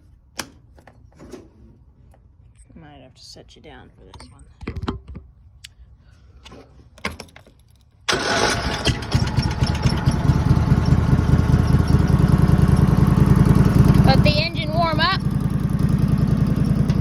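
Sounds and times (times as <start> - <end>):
lawn mower engine running: 8.1 - 17.0.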